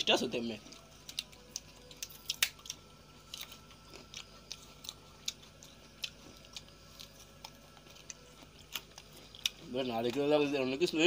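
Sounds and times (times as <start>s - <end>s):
coconut crunching being chewed: 0.0s - 11.0s.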